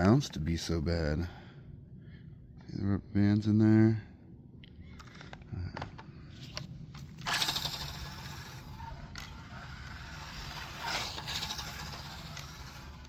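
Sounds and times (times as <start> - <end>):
toy truck motor whirring: 6.5 - 13.0.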